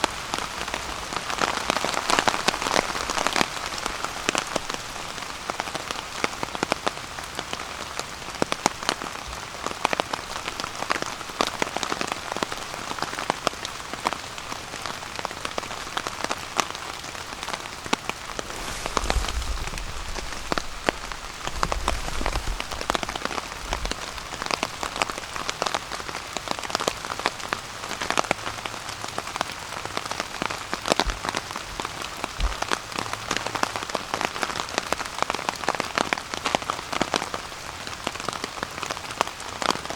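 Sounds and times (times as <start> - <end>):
rain pattering on a tarp: 0.0 - 39.9
low rumbles: 18.3 - 24.3.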